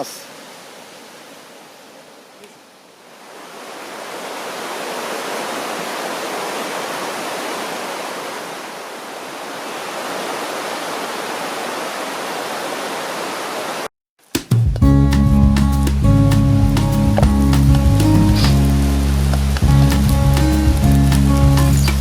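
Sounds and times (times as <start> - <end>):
mountain stream rushing: 0.0 - 13.9, 16.1 - 22.0.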